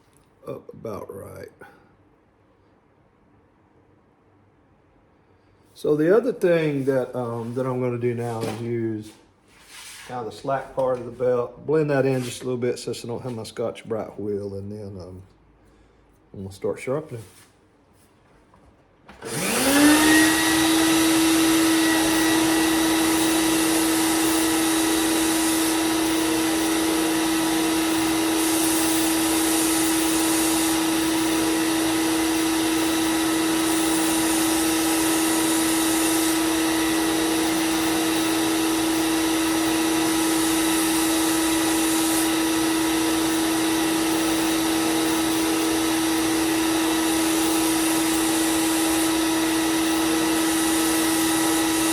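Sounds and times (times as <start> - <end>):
belt sander humming: 19.2 - 51.9.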